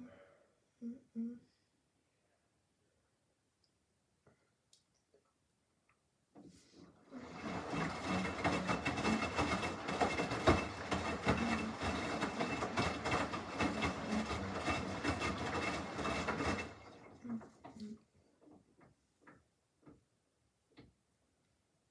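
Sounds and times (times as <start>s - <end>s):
washing machine drum churning: 7.1s - 17.6s.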